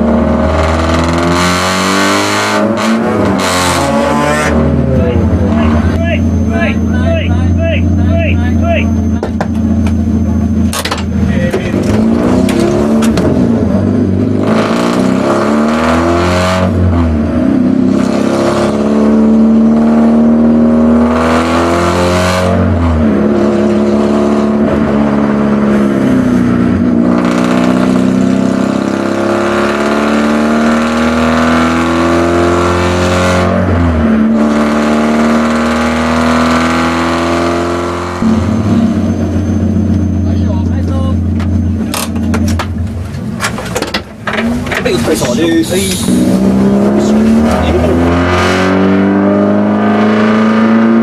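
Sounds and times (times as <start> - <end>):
race car engine accelerating: 0.0 - 51.0.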